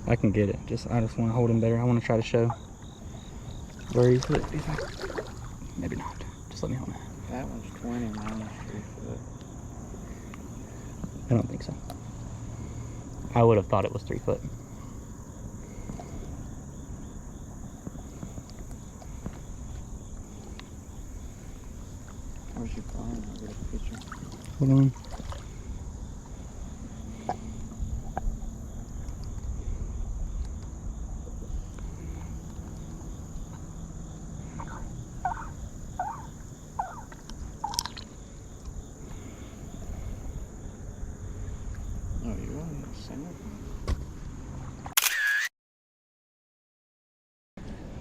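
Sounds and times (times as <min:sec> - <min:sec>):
insects droning: 0:00.0 - 0:44.9
wind and water rumble: 0:00.0 - 0:44.9, 0:47.6 - 0:48.0
bird calling: 0:31.3 - 0:38.0.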